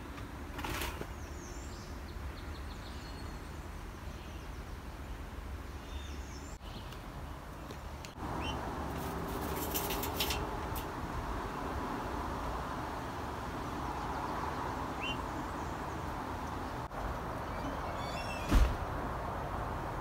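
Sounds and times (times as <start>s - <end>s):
low outdoor hum: 0.0s - 20.0s
small birds chirping: 1.0s - 11.7s, 12.6s - 18.6s
brief rustle: 8.9s - 10.9s.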